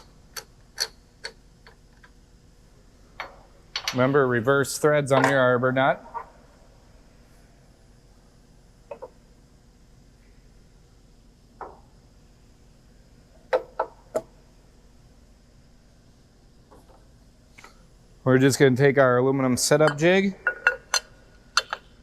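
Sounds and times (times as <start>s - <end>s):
faint steady machine hum: 0.0s - 22.0s
metal parts clinking and knocking: 19.8s - 22.0s.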